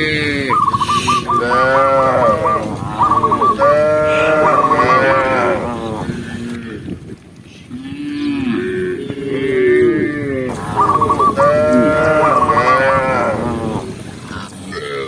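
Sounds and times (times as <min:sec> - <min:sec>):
cows mooing: 0:00.0 - 0:07.0, 0:07.7 - 0:14.1.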